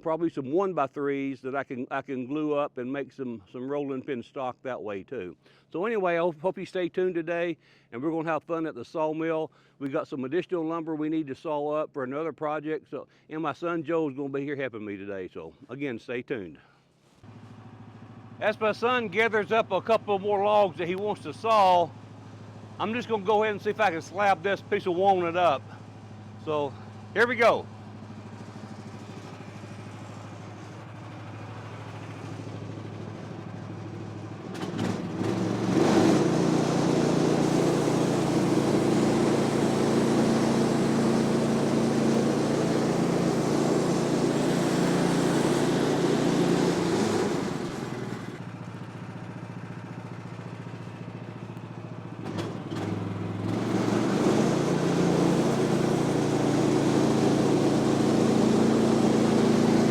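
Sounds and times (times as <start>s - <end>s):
sawmill gas engine running: 17.3s - 59.9s
band saw blade cutting log: 35.3s - 48.3s.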